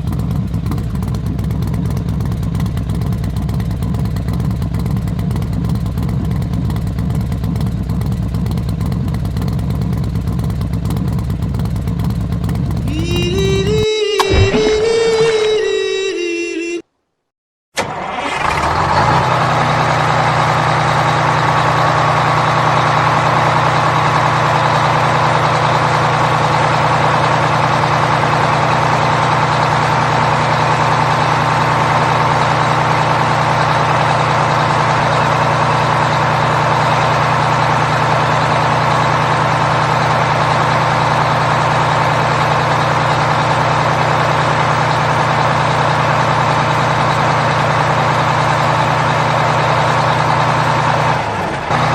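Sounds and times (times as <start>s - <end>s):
heavy truck engine idling: 0.0s - 15.4s, 17.8s - 51.9s.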